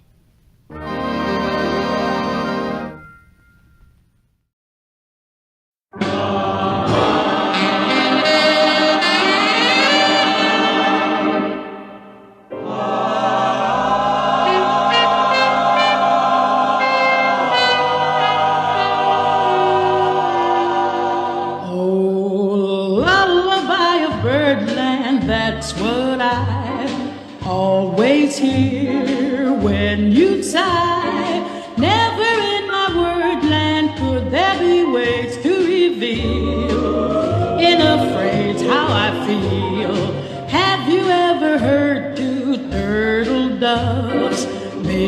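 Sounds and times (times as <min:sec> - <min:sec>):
instrumental music: 0:00.7 - 0:04.2, 0:06.0 - 0:21.6, 0:23.1 - 0:45.0
person singing: 0:34.6 - 0:45.0.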